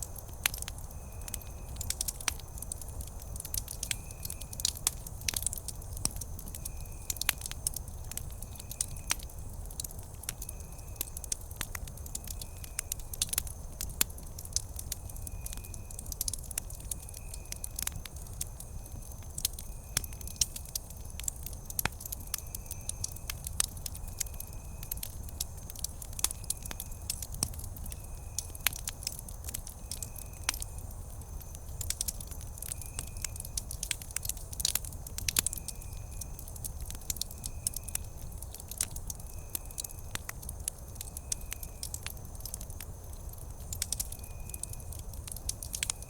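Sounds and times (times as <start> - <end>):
campfire crackling: 0.0 - 46.0.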